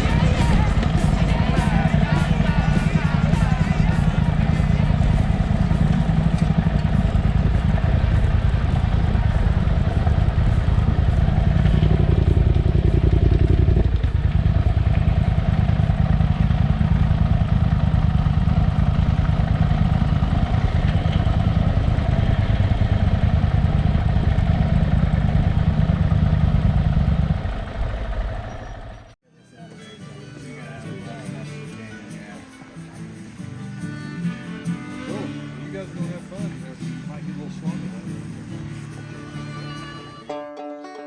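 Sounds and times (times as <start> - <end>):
motorcycle engine running: 0.0 - 29.2.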